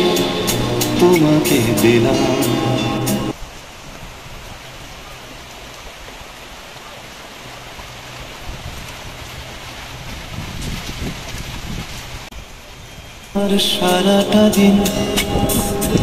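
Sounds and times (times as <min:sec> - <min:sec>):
light rain falling: 0:00.0 - 0:16.0
wind buffeting microphone: 0:08.3 - 0:13.4, 0:14.3 - 0:16.0.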